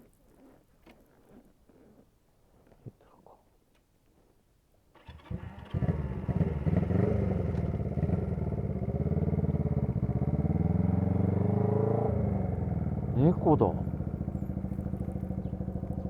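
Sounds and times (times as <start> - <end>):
motorcycle engine starting and running: 5.0 - 16.0.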